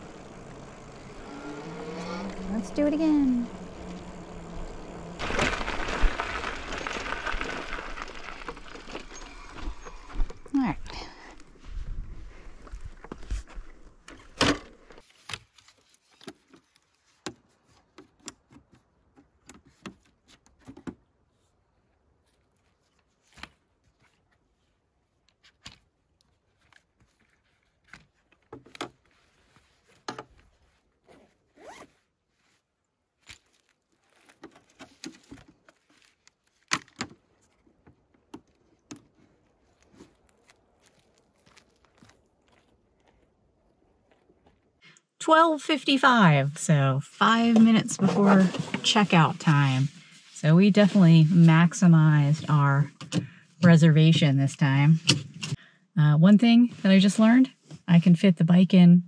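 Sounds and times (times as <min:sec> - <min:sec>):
rasping rustles of gear: 0:00.0 - 0:45.0
camping gear clicks and knocks: 0:12.9 - 0:21.1, 0:25.2 - 0:30.6, 0:33.2 - 0:44.8.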